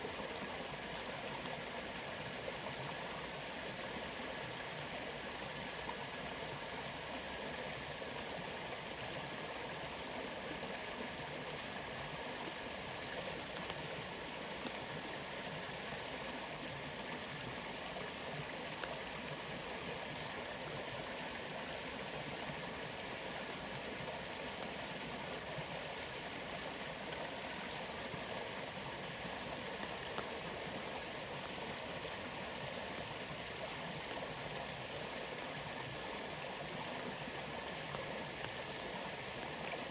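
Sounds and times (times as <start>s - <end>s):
waterfall rushing water: 0.0s - 39.9s
faint ticks: 13.3s - 14.0s, 18.7s - 19.1s, 29.8s - 30.4s.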